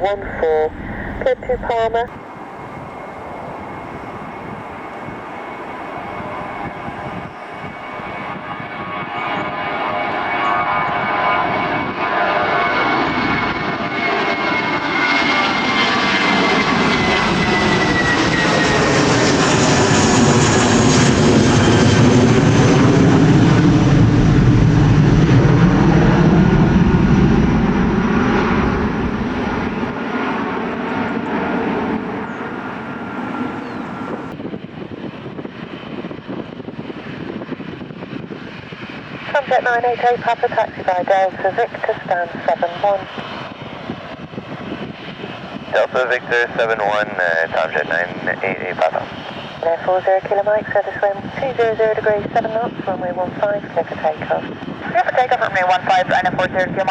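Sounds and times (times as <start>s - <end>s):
low rumble: 0.0s - 2.2s
jet engines passing: 0.0s - 56.9s.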